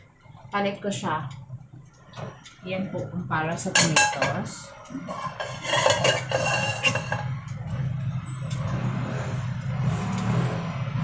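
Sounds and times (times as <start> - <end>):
metal cookware clattering: 3.6 - 7.4.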